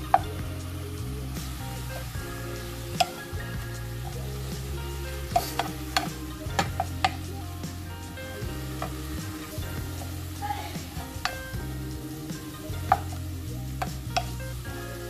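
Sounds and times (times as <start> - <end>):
leaves sizzling in hot oil: 0.0 - 15.0.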